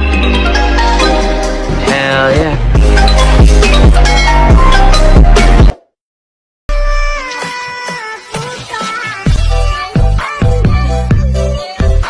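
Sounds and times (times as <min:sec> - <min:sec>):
synth melody: 0:00.0 - 0:05.7
heavy bass and drum beat: 0:01.1 - 0:05.8.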